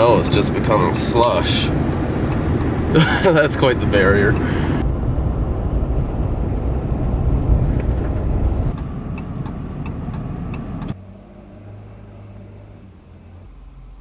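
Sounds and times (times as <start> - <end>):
steady low hum: 0.0 - 9.5
road noise: 0.0 - 14.0
vehicle engine rumble: 0.0 - 14.0.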